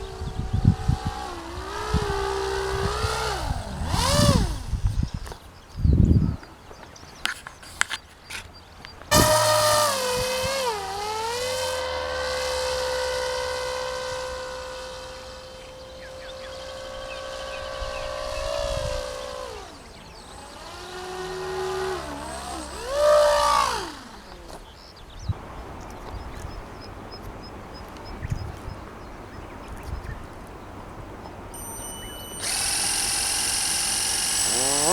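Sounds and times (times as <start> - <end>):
small motor whining: 0.0 - 6.2, 9.0 - 25.4, 31.6 - 34.9.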